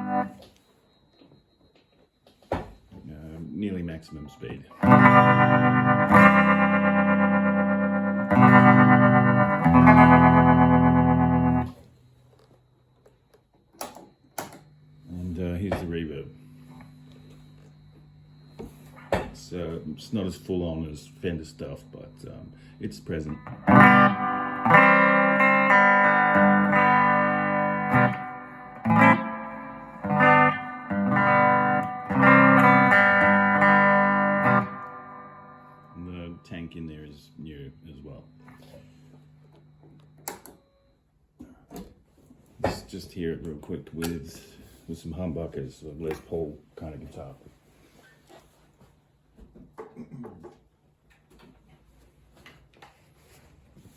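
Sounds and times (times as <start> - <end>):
electric guitar chords with tremolo: 0.0 - 0.4, 4.8 - 11.9, 18.2 - 36.8
faint amp hum: 3.0 - 12.7, 13.8 - 41.6, 42.2 - 50.5.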